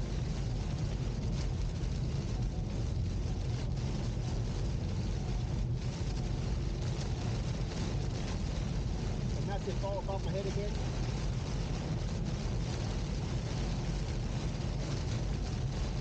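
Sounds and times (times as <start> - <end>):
heavy rain on a car: 0.0 - 16.0.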